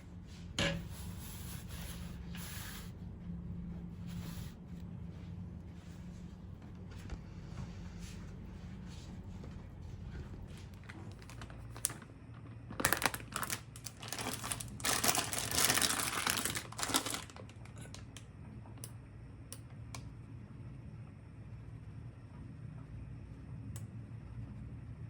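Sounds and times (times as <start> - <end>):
wrapper crinkling and rustling: 10.8 - 18.1.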